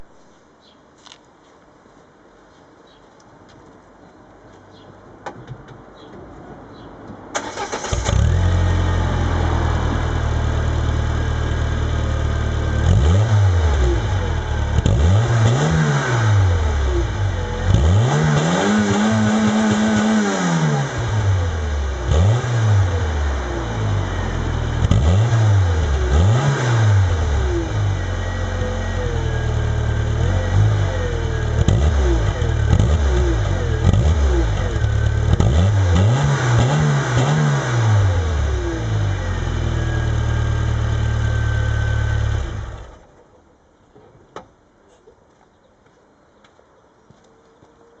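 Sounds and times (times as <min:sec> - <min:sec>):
car engine starting and revving: 0:07.3 - 0:43.0.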